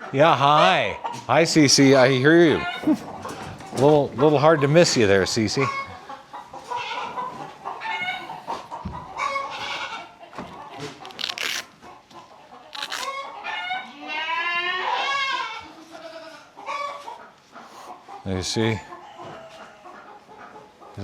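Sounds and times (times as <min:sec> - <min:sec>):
chickens clucking and squawking: 0:00.0 - 0:21.0
goat bleating: 0:06.7 - 0:07.2, 0:09.2 - 0:10.1, 0:12.8 - 0:17.0.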